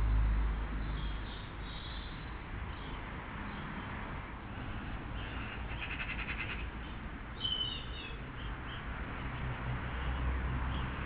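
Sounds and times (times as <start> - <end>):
small birds calling: 0.8 - 4.0, 4.8 - 9.4.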